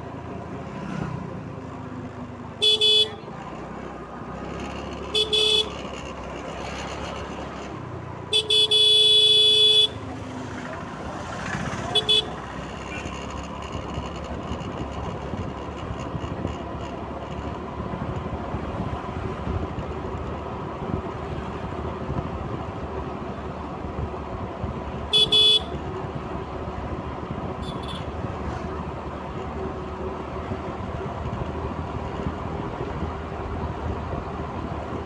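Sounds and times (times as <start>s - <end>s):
road traffic and engine noise: 0.0s - 35.0s
vehicle horn honking: 2.6s - 3.3s, 5.0s - 5.9s, 8.3s - 10.1s, 11.8s - 13.2s, 25.0s - 25.9s, 27.5s - 28.2s.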